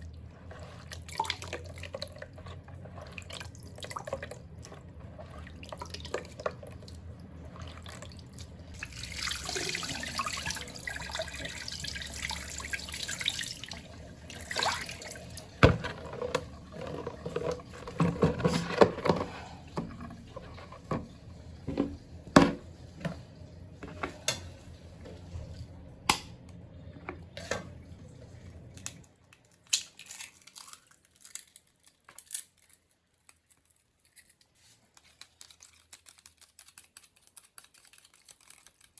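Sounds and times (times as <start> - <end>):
knocks and clicks in sink: 21.7 - 23.2.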